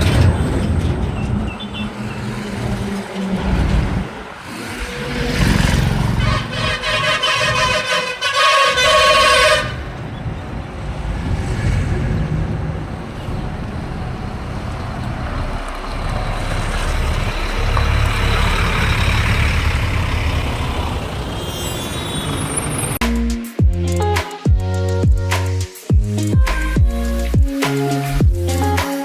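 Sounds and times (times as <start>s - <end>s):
vehicle engine and road noise: 0.0s - 23.3s
vehicle horn: 4.6s - 10.6s.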